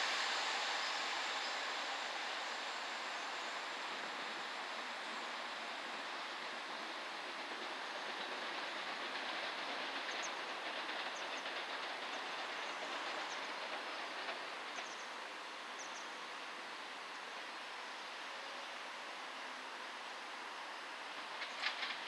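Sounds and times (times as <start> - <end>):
distant passenger train rumbling: 0.0 - 22.0
faint ticks from wheels: 7.6 - 15.2, 21.3 - 22.0.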